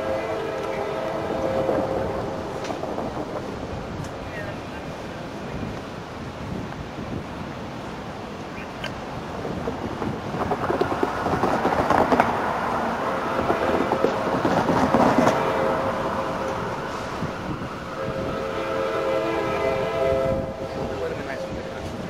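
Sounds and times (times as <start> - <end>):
locomotive air horn chord: 0.0 - 2.4, 15.1 - 22.0
train wheels clacking over rails: 0.0 - 4.5, 8.8 - 22.0.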